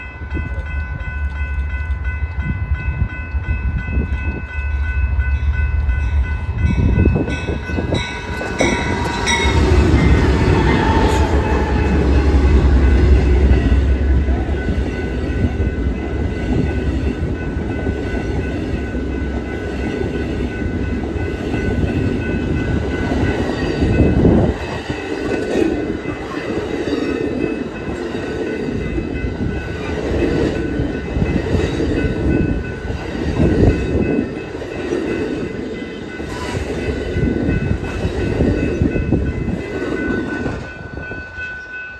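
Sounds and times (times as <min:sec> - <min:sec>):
train wheels on rails: 0:00.0 - 0:41.9
train horn: 0:08.4 - 0:14.6.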